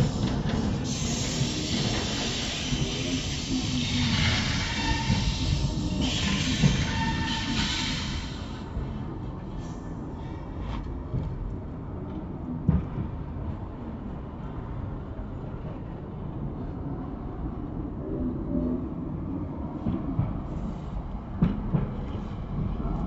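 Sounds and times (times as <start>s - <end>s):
train rumbling: 0.0s - 23.0s.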